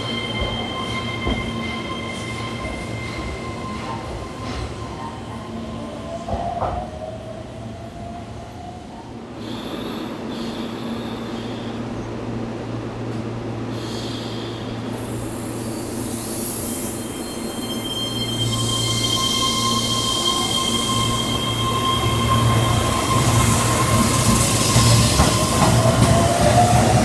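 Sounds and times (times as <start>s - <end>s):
electric train humming: 0.0s - 27.0s
high-pitched wheel squeals: 16.8s - 25.6s.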